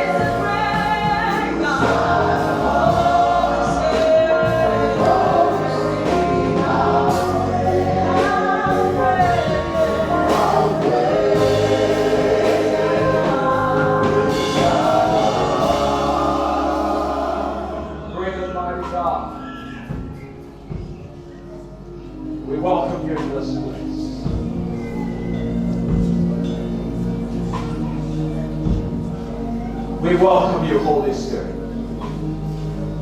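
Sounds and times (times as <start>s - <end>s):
choir singing gospel: 0.0s - 21.0s
sustained bass accompaniment: 0.0s - 21.4s, 22.2s - 33.0s.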